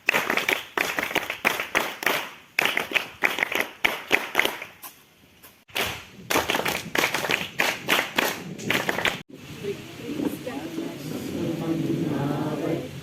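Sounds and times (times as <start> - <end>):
sharp claps: 0.0 - 4.8, 5.7 - 9.2.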